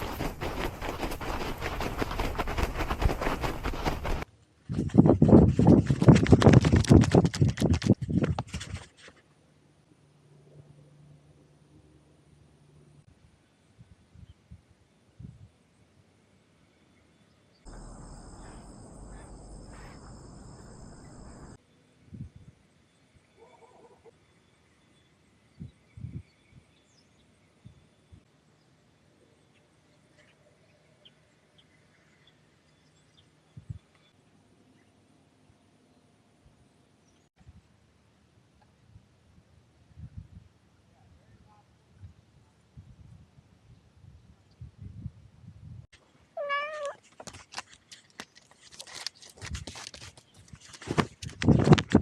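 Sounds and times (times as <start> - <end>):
bird chirps: 17.7 - 21.6
steady insect drone: 17.7 - 21.6
cat meowing: 46.4 - 47.0.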